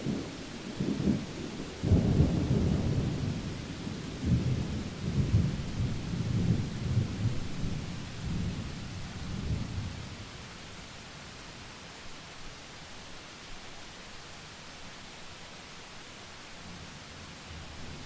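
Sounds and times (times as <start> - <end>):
thunder rumbling: 0.0 - 10.0
rain hiss: 0.0 - 18.0.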